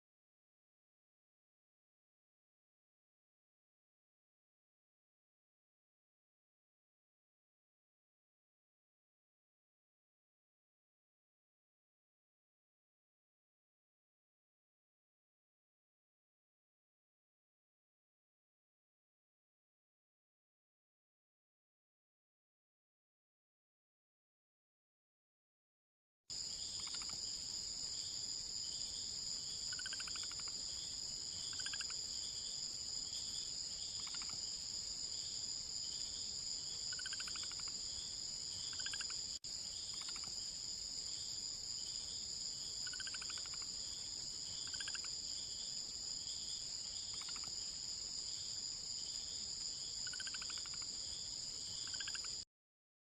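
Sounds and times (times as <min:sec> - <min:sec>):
insect trill: 0:26.3 - 0:52.5.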